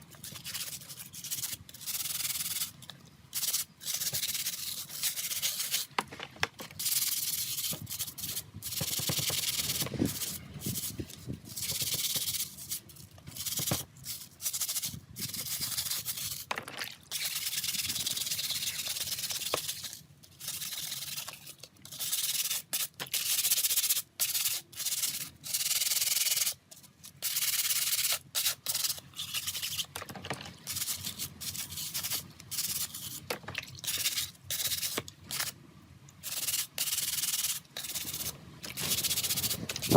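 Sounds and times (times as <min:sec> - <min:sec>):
hissy sanding scrubbing: 0:36.2 - 0:39.9.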